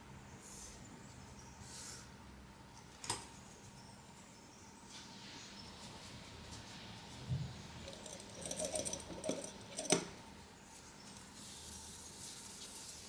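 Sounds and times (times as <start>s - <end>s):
light clicks and rattles: 7.8s - 10.2s.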